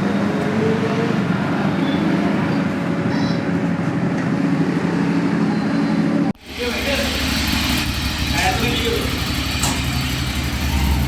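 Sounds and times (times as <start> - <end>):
road and wind noise: 0.0 - 11.0
vehicle engine hum: 3.6 - 11.0.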